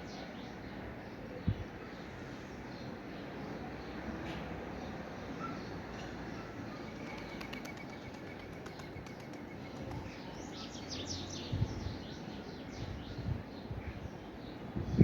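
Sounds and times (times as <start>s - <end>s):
small birds chirping: 4.8s - 15.0s.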